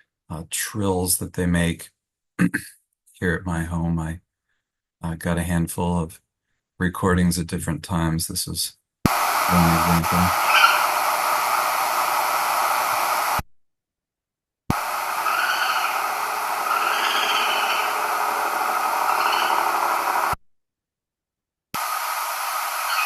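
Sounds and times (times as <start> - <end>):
steady hiss: 9.1 - 13.4, 14.7 - 20.4, 21.8 - 23.0
raccoon wavering cries: 10.3 - 11.0, 14.9 - 20.2.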